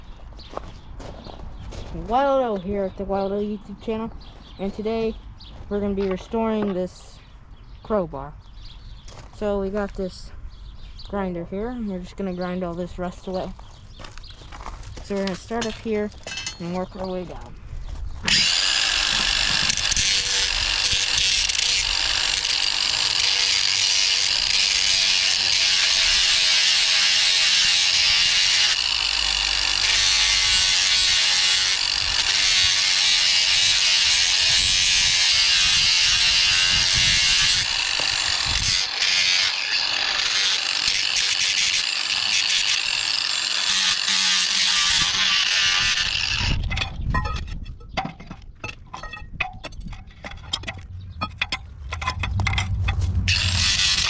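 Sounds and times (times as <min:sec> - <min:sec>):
power grinder grinding metal: 0:18.2 - 0:46.9, 0:53.3 - 0:54.0.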